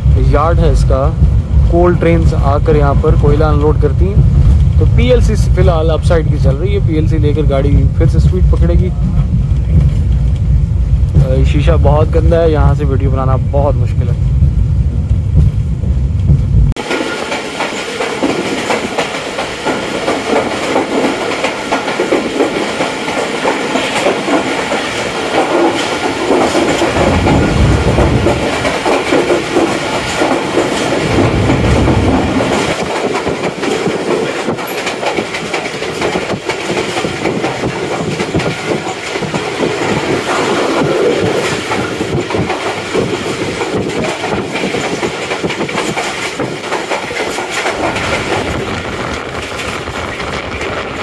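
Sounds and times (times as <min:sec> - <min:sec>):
heavy low train rumble: 0:00.0 - 0:51.0
train wheels clacking on rails: 0:16.2 - 0:51.0.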